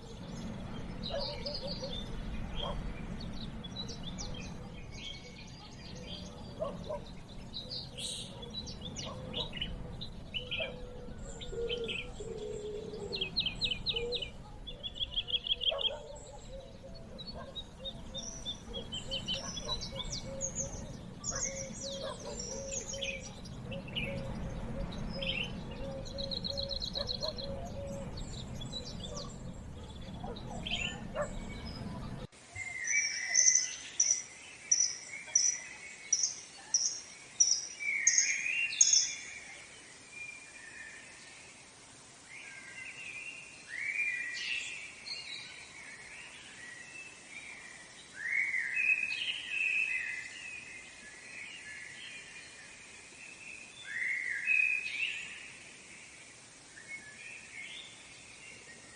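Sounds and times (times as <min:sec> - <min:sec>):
low background rumble: 0:00.0 - 0:32.3
birds chirping and trilling: 0:00.0 - 0:41.2.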